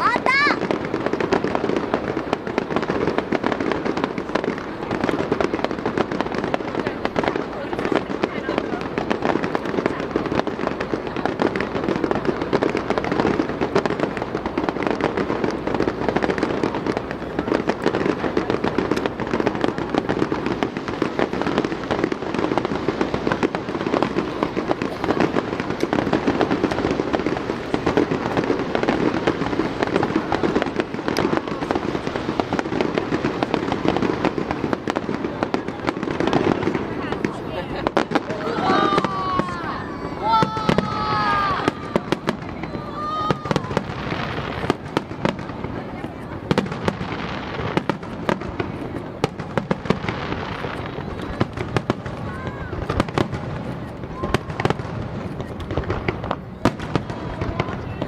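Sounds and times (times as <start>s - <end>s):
fireworks bursting and crackling: 0.0s - 58.0s.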